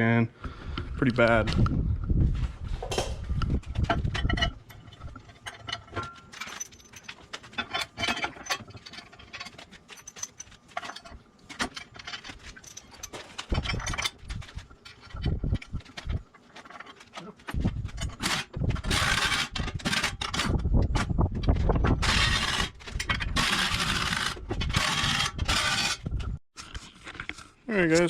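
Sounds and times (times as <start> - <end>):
metal tools clinking: 3.9 - 18.4.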